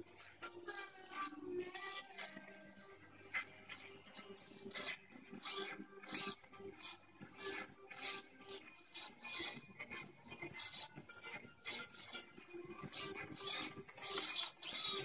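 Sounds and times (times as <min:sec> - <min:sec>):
servo motors whirring: 0:12.9 - 0:15.0.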